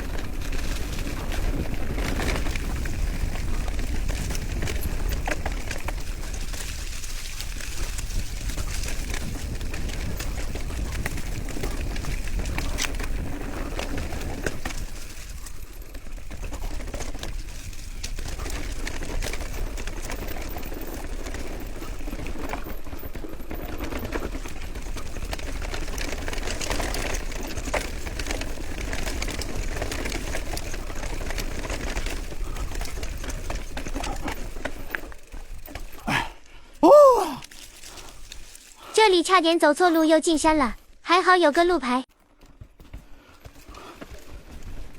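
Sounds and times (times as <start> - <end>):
wind rumble on microphone: 0.0 - 21.8
bicycle rattling and ticking: 0.0 - 36.8, 37.4 - 40.8, 42.1 - 44.9.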